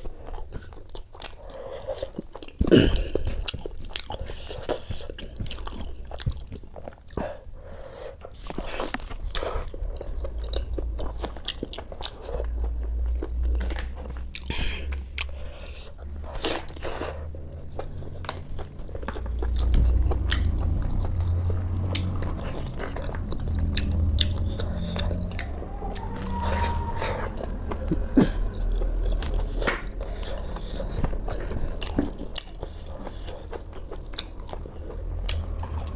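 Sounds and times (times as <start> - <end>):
person chewing food: 0.0 - 35.9.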